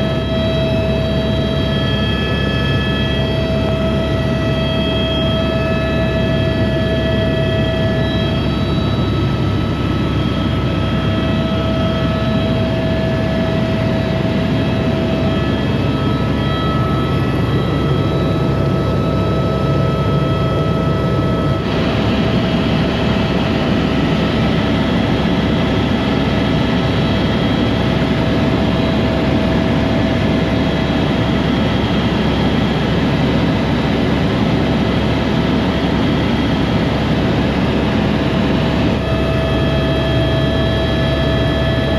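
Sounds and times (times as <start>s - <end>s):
aircraft engine drone: 0.0s - 41.9s.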